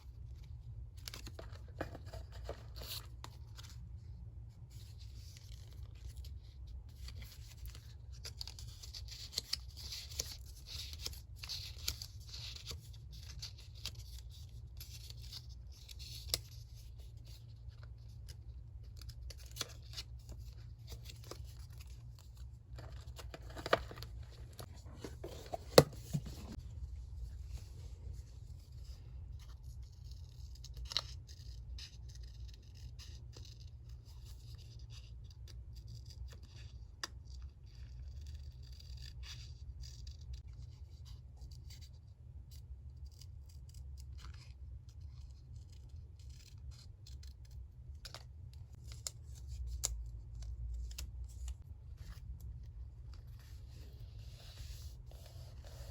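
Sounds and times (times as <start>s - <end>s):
paper rustling and scraping: 1.0s - 17.7s, 19.4s - 30.3s, 50.4s - 55.9s.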